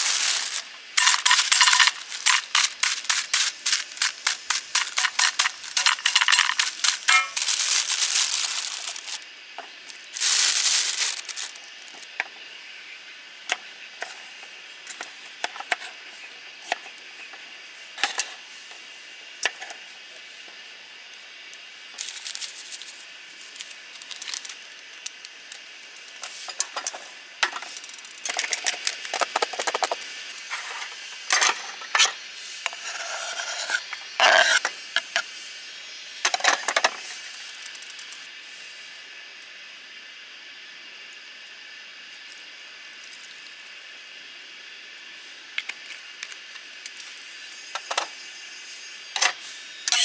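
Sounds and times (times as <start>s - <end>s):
objects being handled: 0.0s - 11.6s.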